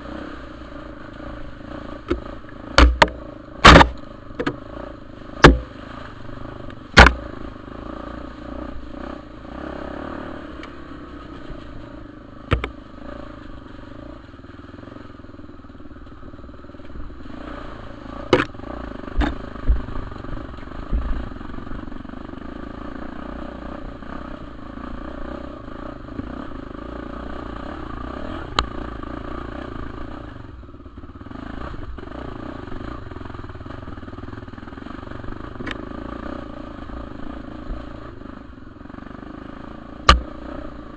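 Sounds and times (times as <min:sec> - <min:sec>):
motorcycle engine running: 0:00.0 - 0:40.9
sharp knocks and clatters: 0:02.1 - 0:04.6, 0:12.5 - 0:12.8.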